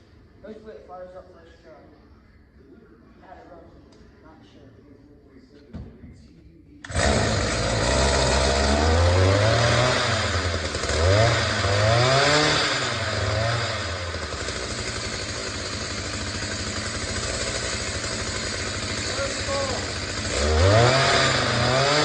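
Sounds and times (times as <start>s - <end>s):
small engine revving and idling: 6.8s - 22.0s.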